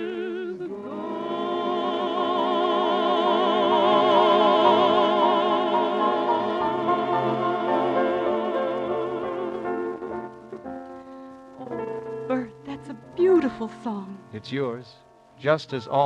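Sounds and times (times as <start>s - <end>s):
man singing with vibrato: 15.4s - 16.0s.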